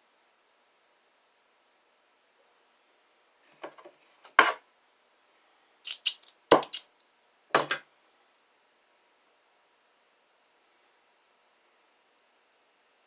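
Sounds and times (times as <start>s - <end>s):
small hard objects clinking: 5.9s - 7.0s.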